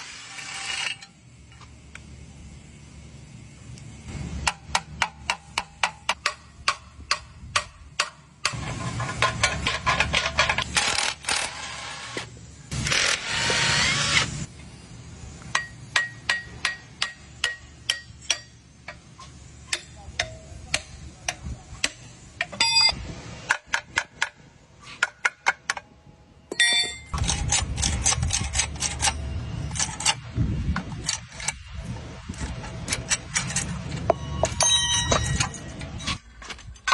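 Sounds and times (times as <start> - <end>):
hand tools tapping metal parts: 15.5 - 22.9, 26.5 - 31.6, 32.4 - 36.9.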